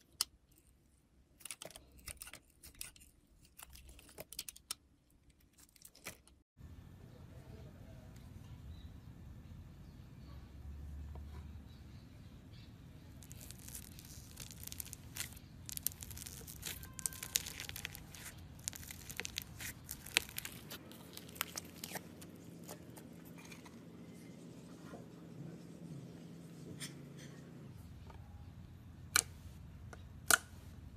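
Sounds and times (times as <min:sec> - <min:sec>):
slime crackling and popping: 0:13.2 - 0:22.9.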